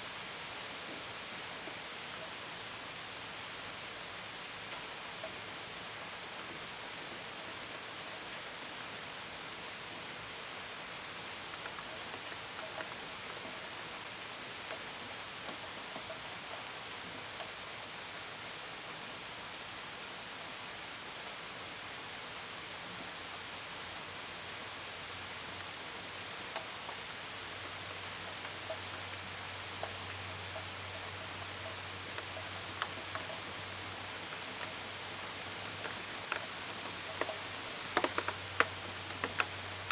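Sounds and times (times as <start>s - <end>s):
steady rain: 0.0s - 39.9s
raindrops ticking on window: 35.6s - 39.9s.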